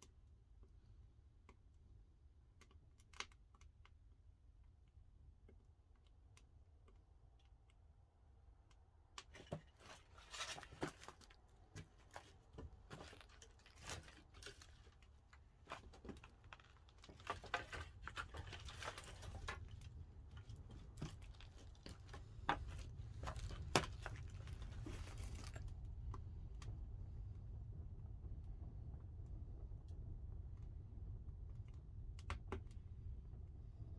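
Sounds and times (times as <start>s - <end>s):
low rumble of kiln fire: 0.0s - 33.9s
firewood crackling and popping: 9.2s - 33.9s.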